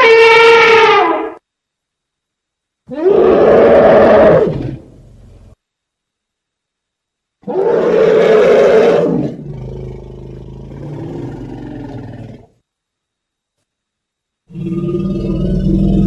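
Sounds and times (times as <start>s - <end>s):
elephant roaring: 2.9s - 5.1s, 7.4s - 12.5s, 14.5s - 16.0s.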